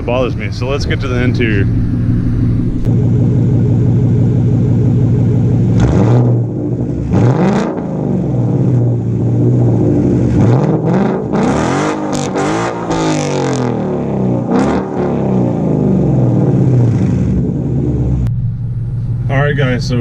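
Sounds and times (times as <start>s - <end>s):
car engine idling and revving: 0.0s - 20.0s.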